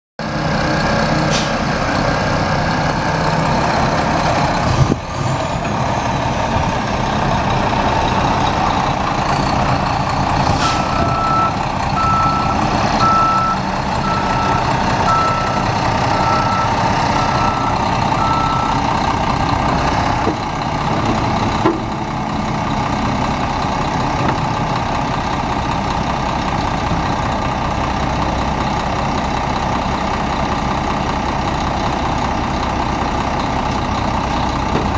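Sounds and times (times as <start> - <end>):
diesel truck engine running: 0.2 - 34.9
reversing alarm beeps: 10.9 - 18.8.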